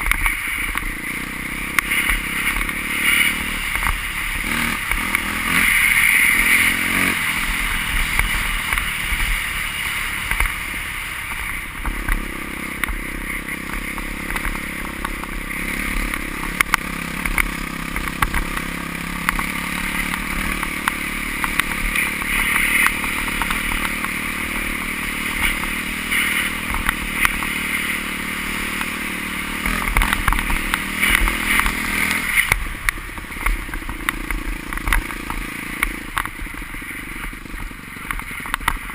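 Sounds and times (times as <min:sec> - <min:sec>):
motorcycle engine drone: 0:00.0 - 0:38.9.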